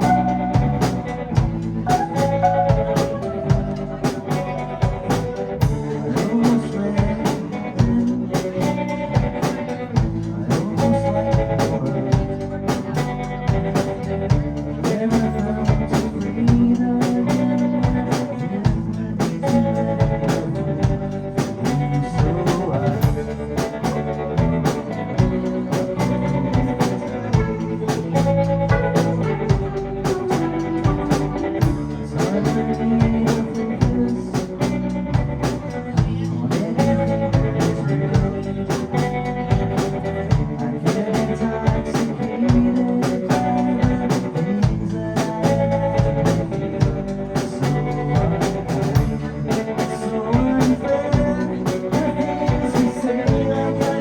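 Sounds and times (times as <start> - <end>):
drum kit beat: 0.0 - 54.0
live band playing: 0.0 - 54.0.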